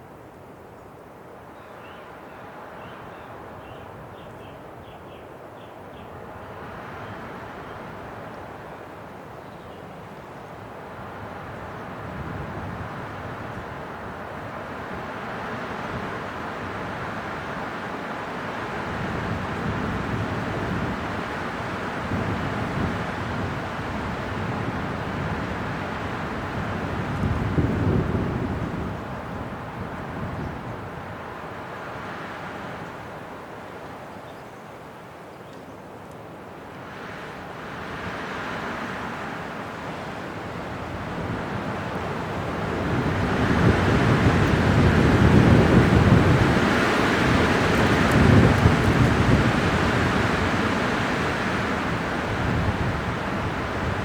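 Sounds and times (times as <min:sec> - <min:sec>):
wind blowing in gusts: 0:00.0 - 0:54.0.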